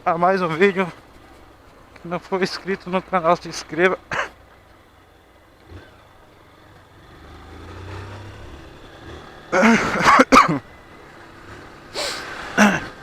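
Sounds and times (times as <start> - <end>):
faint engine hum: 0.0 - 13.0
man clearing his throat: 4.1 - 4.4, 9.6 - 10.6, 12.6 - 13.0.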